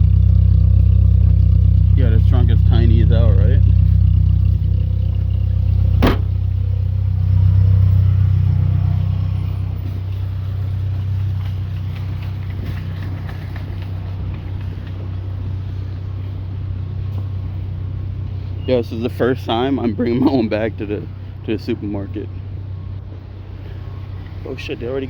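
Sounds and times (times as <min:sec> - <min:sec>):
car engine idling: 0:00.0 - 0:25.0
car trunk lid slamming: 0:05.9 - 0:06.5.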